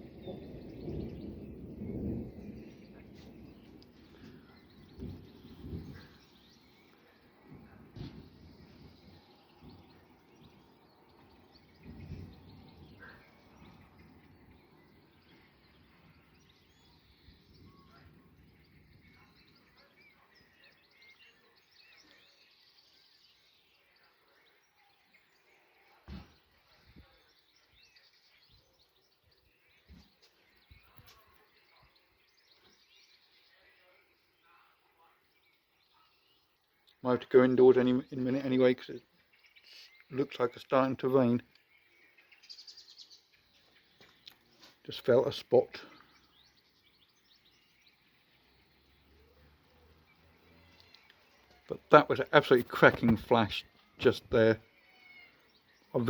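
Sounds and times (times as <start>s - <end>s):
small birds chirping: 0.0s - 56.0s
low thumps: 4.8s - 6.1s.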